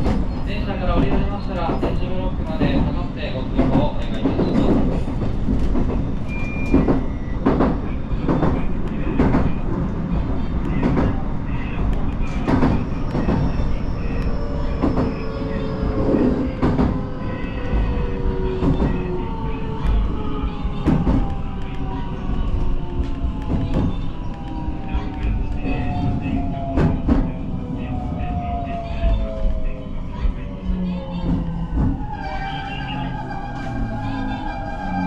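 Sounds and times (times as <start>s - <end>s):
train knocks: 0.0s - 9.9s, 11.8s - 22.0s
train rumbling: 0.0s - 35.0s.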